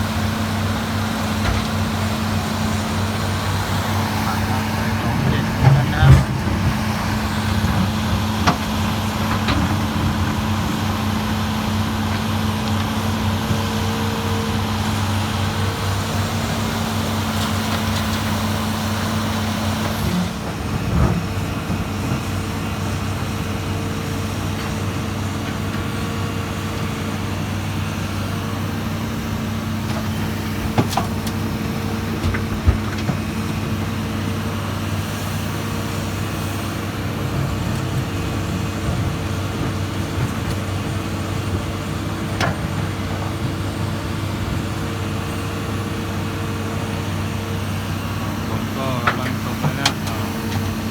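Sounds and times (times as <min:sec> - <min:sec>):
excavator diesel engine humming: 0:00.0 - 0:50.9.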